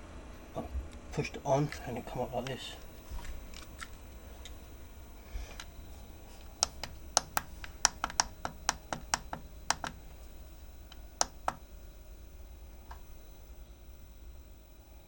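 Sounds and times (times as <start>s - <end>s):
remote control button clicks: 6.6s - 10.2s, 10.9s - 11.6s.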